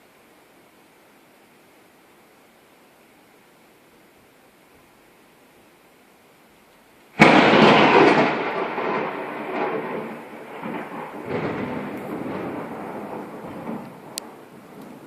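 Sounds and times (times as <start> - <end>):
thunderclap and rumbling: 7.2 - 15.0.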